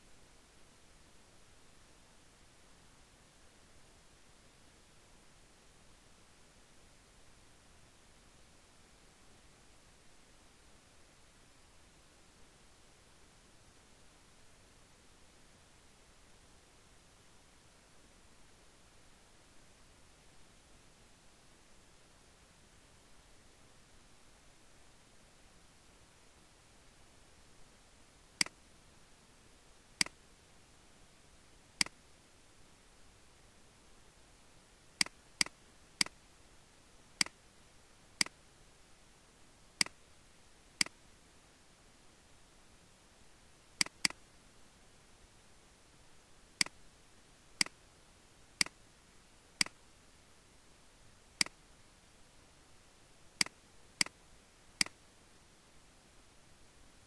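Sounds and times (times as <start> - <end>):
faint steady hiss: 0.0 - 57.0
computer mouse clicks: 30.0 - 30.2, 35.0 - 36.2, 37.2 - 37.4, 39.8 - 40.0, 43.8 - 44.2, 46.6 - 46.8, 47.6 - 47.8, 49.6 - 49.8, 51.4 - 51.6, 53.4 - 54.2, 54.8 - 55.0
computer mouse button clicking: 43.8 - 44.2.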